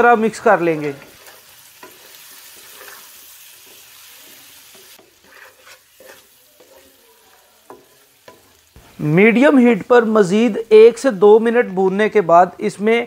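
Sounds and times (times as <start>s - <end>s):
chicken sizzling in oil: 0.0s - 13.0s
spatula scraping across pan: 0.6s - 9.0s.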